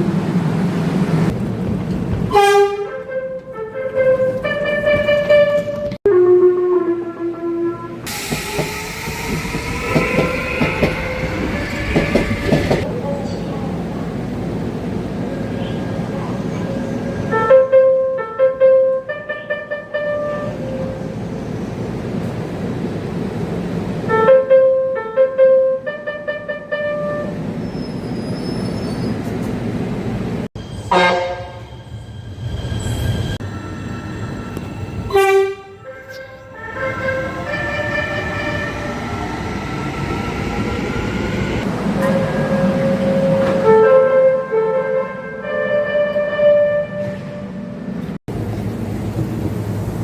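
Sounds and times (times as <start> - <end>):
subway train running: 0.0 - 50.0
train electric horn: 2.3 - 8.1, 17.3 - 21.0, 24.1 - 27.4, 30.8 - 31.8, 35.1 - 39.1, 41.6 - 47.8.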